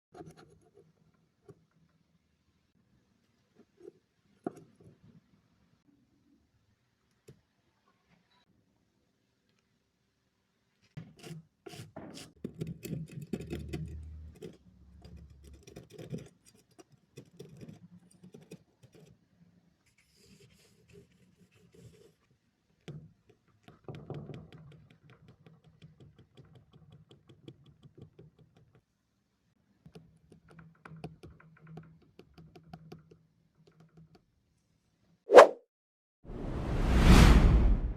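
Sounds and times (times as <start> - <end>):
small tools scratching a phone port: 11.0 - 19.2.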